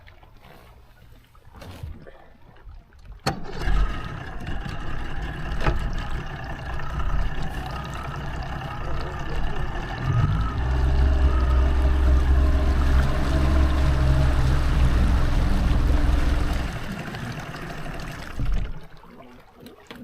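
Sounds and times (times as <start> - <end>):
boat motor running: 3.5 - 19.1.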